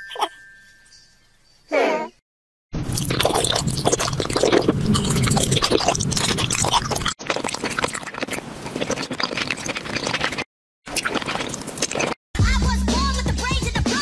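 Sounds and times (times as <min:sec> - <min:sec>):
candy being chewed: 0:02.9 - 0:12.2.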